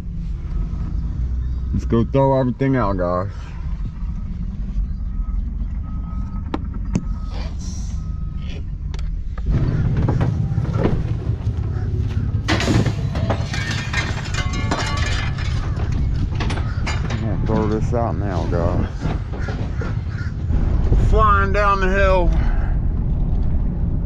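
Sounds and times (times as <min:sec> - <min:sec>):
heavy truck engines running: 0:00.0 - 0:24.0
reversing beeper: 0:00.2 - 0:17.2
metal and debris clanking: 0:09.4 - 0:23.6.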